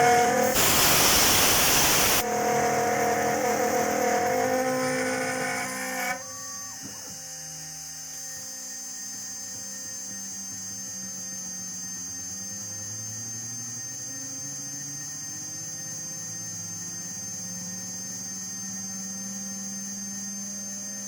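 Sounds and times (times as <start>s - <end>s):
milling machine cutting metal: 0.0s - 6.2s
milling machine hum and whine: 0.0s - 21.0s.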